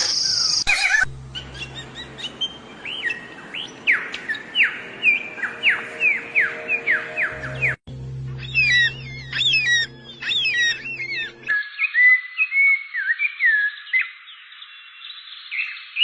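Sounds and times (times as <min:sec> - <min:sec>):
songbird chirps: 0:00.0 - 0:16.0
bird whistled notes: 0:08.4 - 0:11.3.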